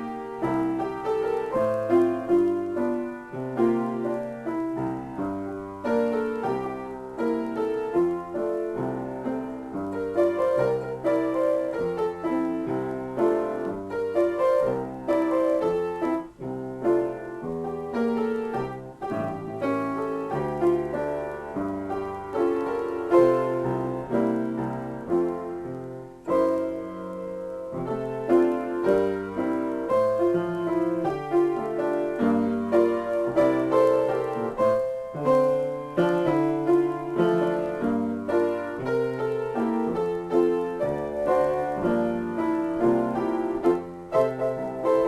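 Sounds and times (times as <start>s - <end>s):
solo piano: 0.0s - 45.0s.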